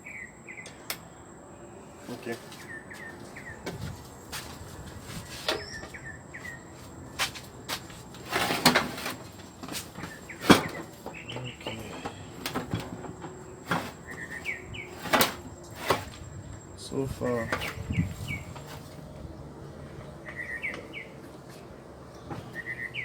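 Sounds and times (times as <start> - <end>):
small birds chirping: 0.0 - 8.3, 9.5 - 23.0
handling knocks and clicks: 8.1 - 16.3.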